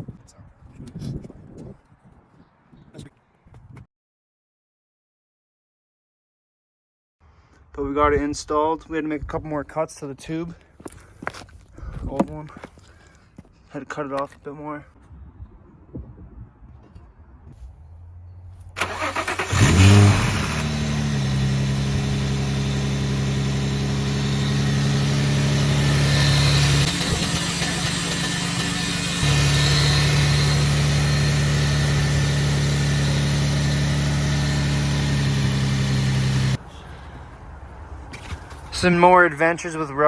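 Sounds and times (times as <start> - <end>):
car engine starting and idling: 18.7 - 39.0.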